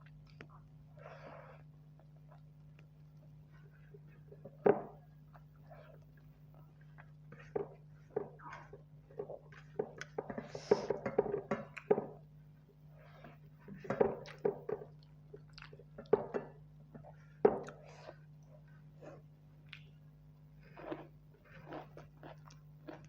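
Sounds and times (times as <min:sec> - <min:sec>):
wet chewing and smacking: 0:00.0 - 0:00.9, 0:01.6 - 0:10.2, 0:14.2 - 0:16.2, 0:16.9 - 0:23.0
steady low hum: 0:00.0 - 0:23.0.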